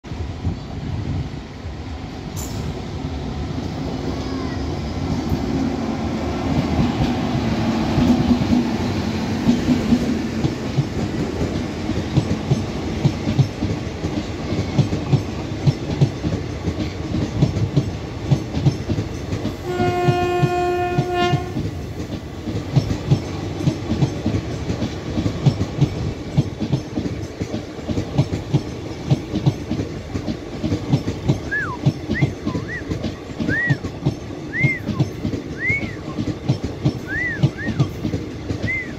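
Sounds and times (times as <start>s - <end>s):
train passing at speed: 0.0s - 38.9s
wheels clacking over rail joints: 6.6s - 38.9s
train horn blast: 19.6s - 21.7s.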